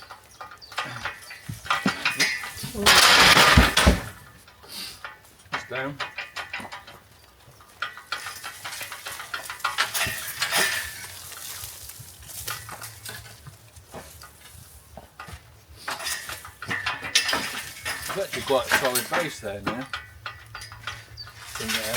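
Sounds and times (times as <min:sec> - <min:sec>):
sharp knocks of stone: 0:02.7 - 0:04.2.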